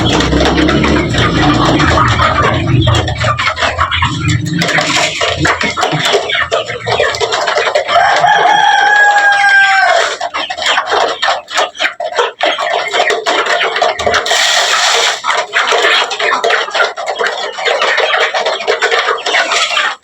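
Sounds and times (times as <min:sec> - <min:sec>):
sharp clicks and scratching: 0:00.0 - 0:08.9, 0:09.8 - 0:20.0
chickens clucking: 0:00.0 - 0:20.0
rooster crowing: 0:08.0 - 0:10.1.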